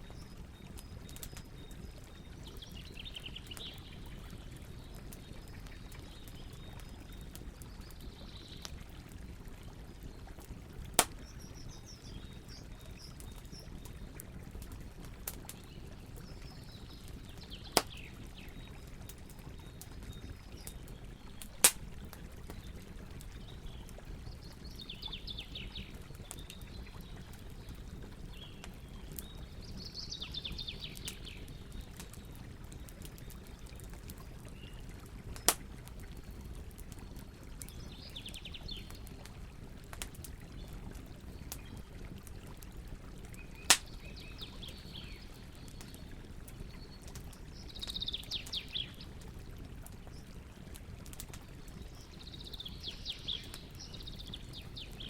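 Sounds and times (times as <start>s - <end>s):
campfire crackling: 0.0s - 55.0s
fire popping: 0.1s - 55.0s
small birds trilling: 0.6s - 8.6s.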